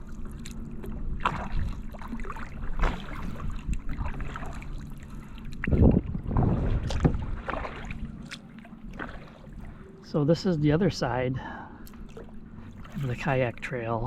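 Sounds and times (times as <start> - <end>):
paddle splashing in water: 0.0 - 9.8, 11.9 - 13.6
wind on microphone: 5.5 - 7.8.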